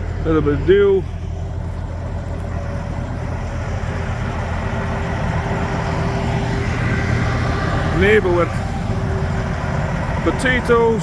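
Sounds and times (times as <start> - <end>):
harvester engine hum: 0.0 - 11.0.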